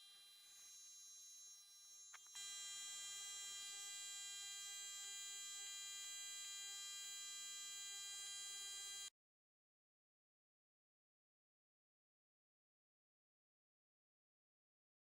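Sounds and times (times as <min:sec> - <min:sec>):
electric hum with whine: 0:00.0 - 0:09.1.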